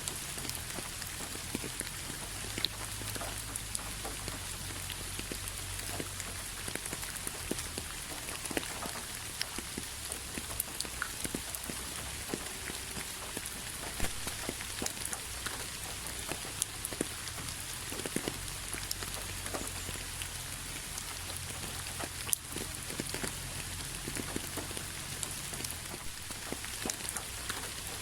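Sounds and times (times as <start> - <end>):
rain falling: 0.0 - 28.0.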